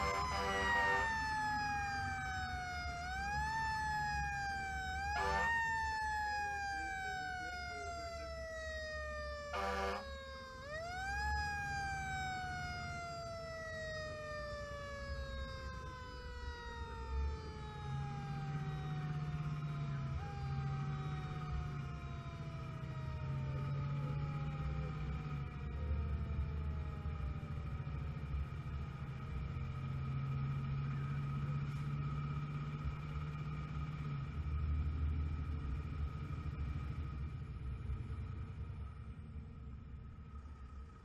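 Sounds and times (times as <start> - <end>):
short horn blasts: 0.0 - 1.1, 5.1 - 5.6, 9.5 - 10.0
emergency vehicle siren wailing: 0.0 - 39.2.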